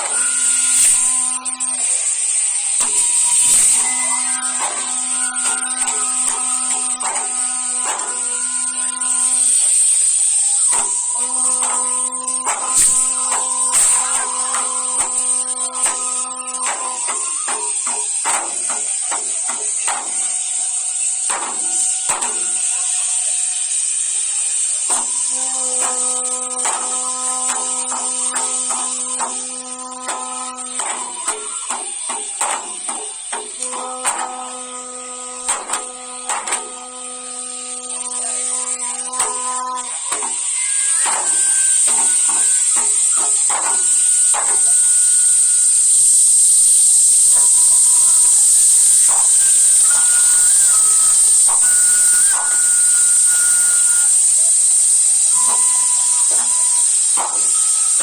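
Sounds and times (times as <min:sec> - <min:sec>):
firework whistles: 0:00.0 - 0:58.0
fireworks hissing: 0:00.0 - 0:58.0
fireworks bangs: 0:40.0 - 0:58.0.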